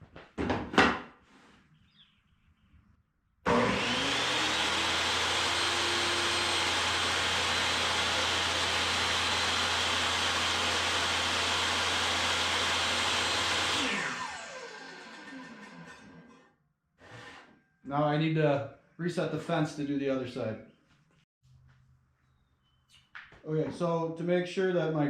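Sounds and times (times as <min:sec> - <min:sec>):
table saw running: 0:03.5 - 0:16.4.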